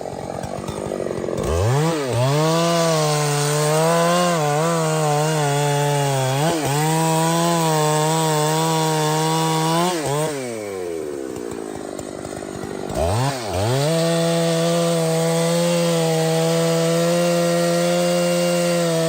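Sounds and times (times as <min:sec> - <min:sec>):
chainsaw cutting through trunk: 0:00.0 - 0:19.0.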